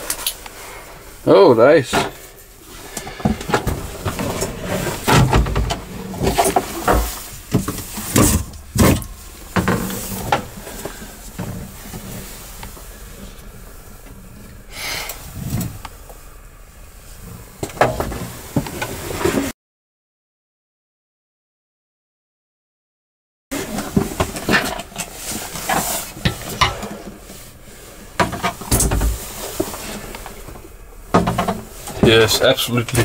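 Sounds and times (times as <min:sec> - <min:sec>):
rustling: 0:02.1 - 0:19.5, 0:23.5 - 0:33.0
knocks and thumps: 0:03.0 - 0:12.2, 0:28.2 - 0:32.4.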